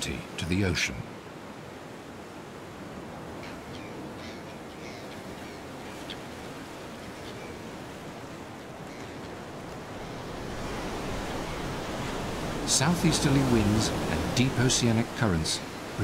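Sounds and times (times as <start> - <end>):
surf washing over rocks: 5.4 - 16.0.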